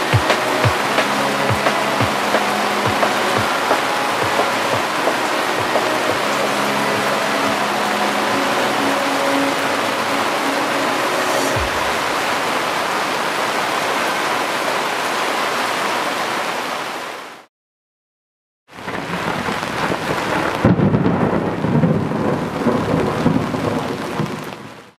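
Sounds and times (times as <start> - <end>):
rushing swell: 0.0 - 13.6
heavy rain pouring: 0.0 - 17.5, 18.7 - 25.0.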